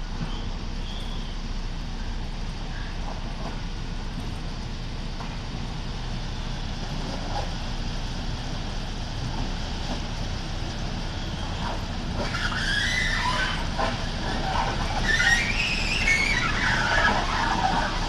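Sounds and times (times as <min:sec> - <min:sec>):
low engine rumble: 0:00.0 - 0:18.0
high shrill squeal: 0:12.3 - 0:13.7, 0:15.0 - 0:17.6.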